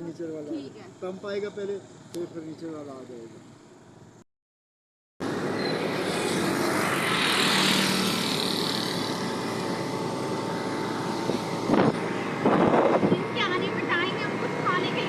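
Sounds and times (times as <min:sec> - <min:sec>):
road traffic noise: 0:00.0 - 0:04.2, 0:05.2 - 0:15.0
vehicle passing: 0:05.2 - 0:15.0.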